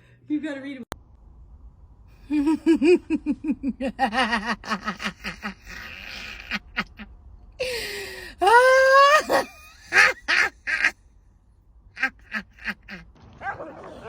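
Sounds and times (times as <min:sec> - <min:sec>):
laugh-like vocal pulses: 0:02.3 - 0:07.1, 0:09.1 - 0:11.0, 0:12.0 - 0:14.0.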